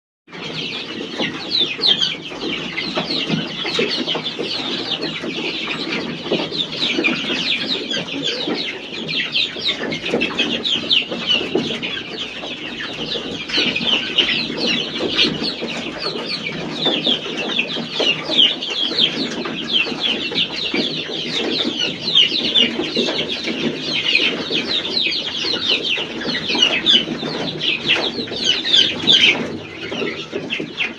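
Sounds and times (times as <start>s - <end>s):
chicks peeping: 0.3s - 30.9s
hen clucking low: 7.4s - 9.0s.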